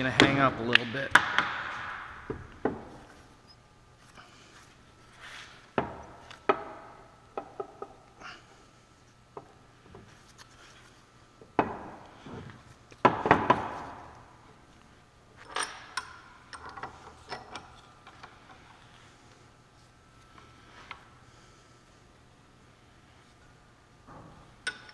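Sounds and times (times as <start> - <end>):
metal-on-metal knocks and clinks: 24.1 - 24.9.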